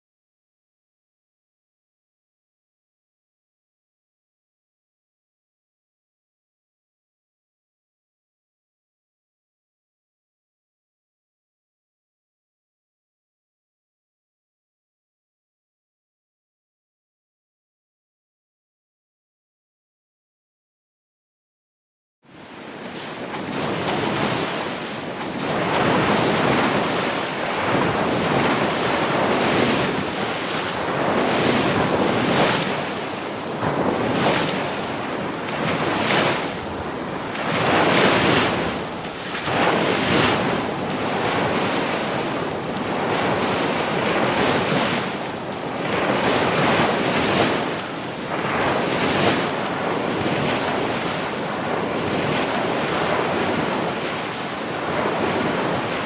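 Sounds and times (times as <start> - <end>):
ocean waves breaking: 22.3 - 56.0.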